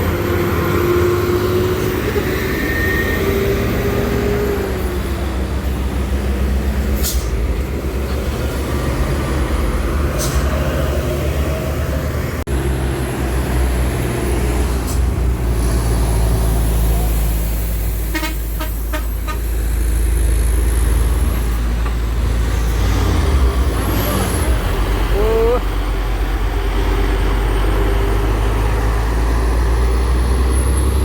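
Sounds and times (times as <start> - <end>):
truck diesel engine rumbling: 0.0 - 31.0
horn toots: 18.1 - 19.5.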